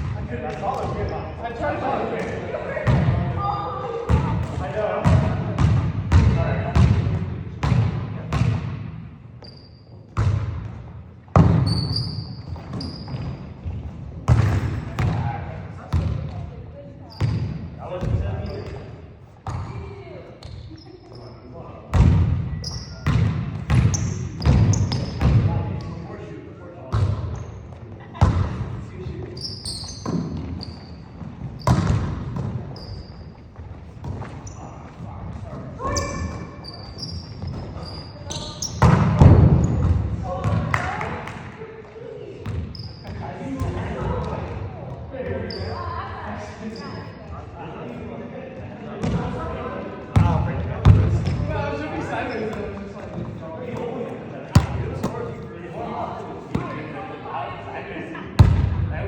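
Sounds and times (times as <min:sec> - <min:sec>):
sneakers squeaking: 0:00.0 - 0:01.4, 0:09.2 - 0:15.2, 0:15.9 - 0:26.0, 0:26.9 - 0:40.9, 0:41.8 - 0:44.3, 0:44.9 - 0:47.5, 0:49.0 - 0:49.4, 0:50.1 - 0:55.5
basketball bouncing on gym floor: 0:05.0 - 0:08.9, 0:10.1 - 0:15.2, 0:15.9 - 0:16.4, 0:23.0 - 0:25.5, 0:31.2 - 0:32.6, 0:38.3 - 0:40.9, 0:50.1 - 0:51.5, 0:54.6 - 0:55.2, 0:58.4 - 0:58.9.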